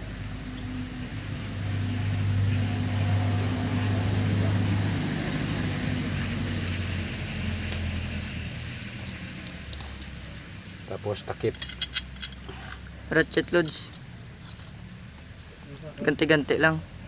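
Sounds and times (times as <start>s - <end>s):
vehicle engine running: 0.0s - 10.5s.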